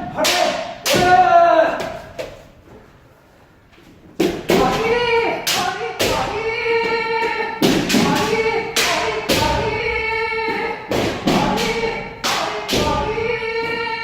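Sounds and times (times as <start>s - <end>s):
people shouting: 0.0s - 1.9s.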